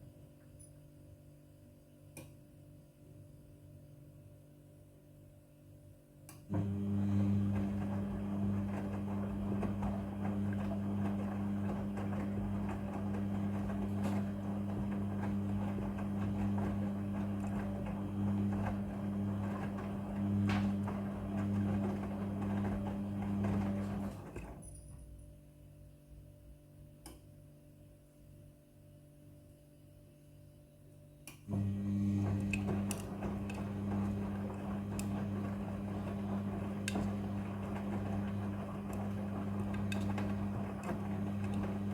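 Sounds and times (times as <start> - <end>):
washing machine hum: 6.4 - 25.4, 31.4 - 41.9.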